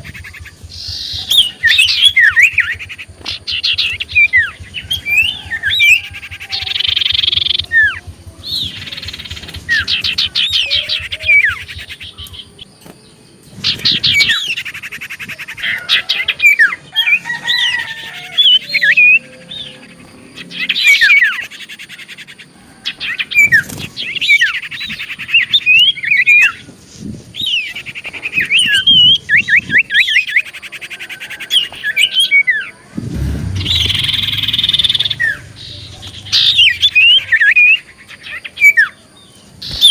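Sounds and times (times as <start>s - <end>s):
bird whistles: 0.0s - 13.0s, 13.6s - 21.5s, 22.7s - 26.7s, 39.6s - 39.9s
bird chattering trills: 0.0s - 39.9s.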